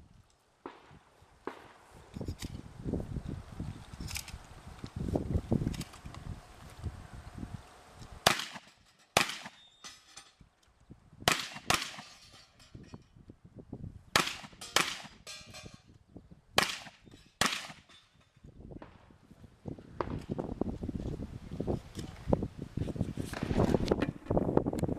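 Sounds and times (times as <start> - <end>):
shotgun shots: 8.2 - 9.7, 11.3 - 12.2, 14.2 - 15.3, 16.6 - 17.9.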